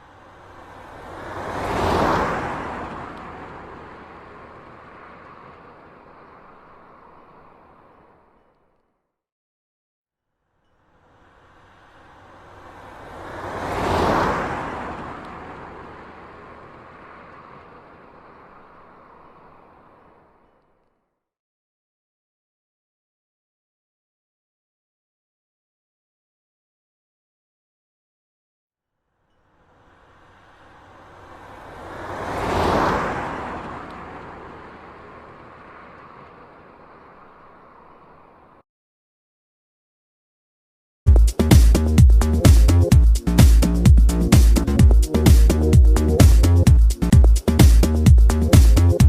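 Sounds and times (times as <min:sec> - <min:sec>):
car passing by: 0:00.0 - 0:08.8, 0:10.6 - 0:21.0, 0:29.3 - 0:38.6, 0:41.4 - 0:49.0.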